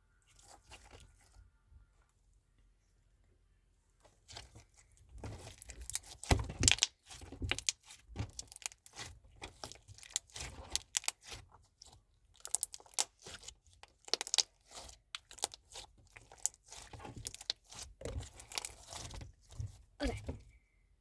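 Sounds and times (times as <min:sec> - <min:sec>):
crunchy slime squished by hand: 0:04.3 - 0:20.4.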